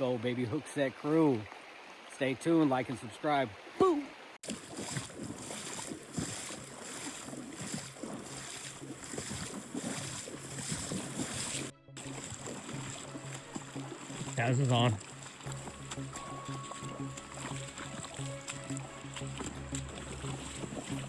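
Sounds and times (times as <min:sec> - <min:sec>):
river water: 0:00.0 - 0:21.0.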